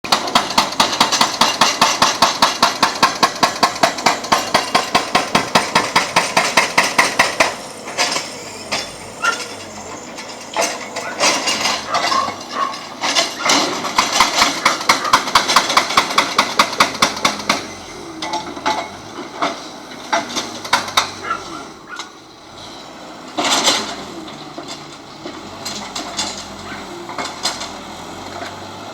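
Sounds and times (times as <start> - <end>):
hydraulic breaker hammering: 0.1 - 22.3, 23.2 - 28.9
machine engine running: 0.1 - 28.9.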